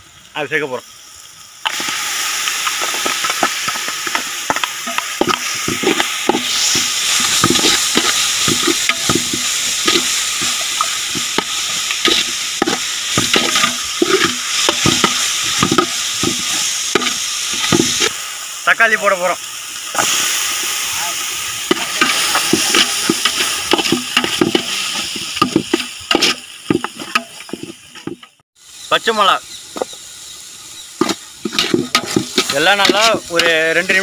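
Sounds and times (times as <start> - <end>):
onions sizzling in hot oil: 0.0 - 34.0
metal ladle scraping pot: 2.8 - 18.1, 21.7 - 28.3, 31.0 - 33.6.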